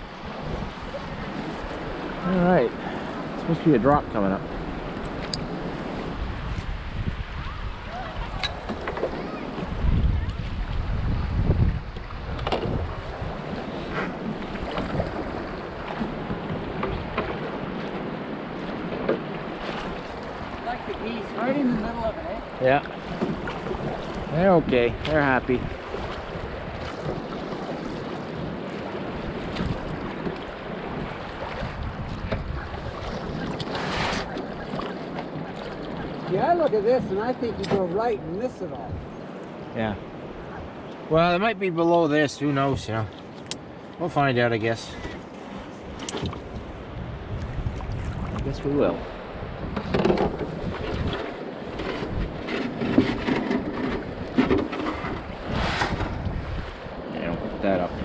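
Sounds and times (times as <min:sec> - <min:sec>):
wind on microphone: 0:00.0 - 0:41.0, 0:44.9 - 0:58.0
water sounds of paddled boat: 0:00.0 - 0:58.0
river water rushing: 0:12.9 - 0:32.0.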